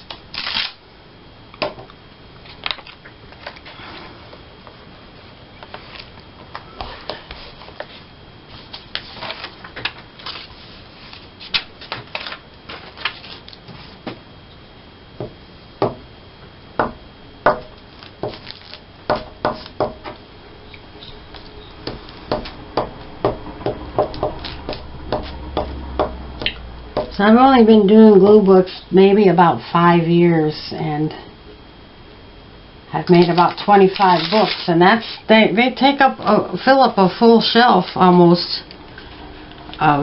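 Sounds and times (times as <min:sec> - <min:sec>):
quiet room hiss: 0:00.0 - 0:40.0
paper clicks and crinkles: 0:08.7 - 0:14.0, 0:17.9 - 0:18.8, 0:33.2 - 0:34.7.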